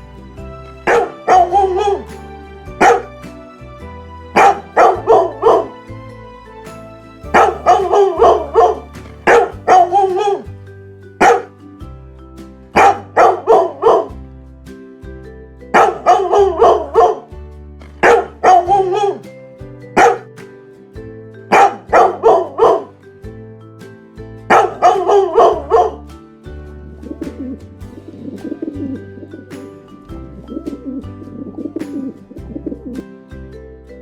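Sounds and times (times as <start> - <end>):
background music: 0.0 - 34.0
dog barking: 0.9 - 2.0, 2.8 - 3.1, 11.2 - 11.5, 12.8 - 14.1, 18.0 - 19.2, 20.0 - 20.3, 21.5 - 22.9.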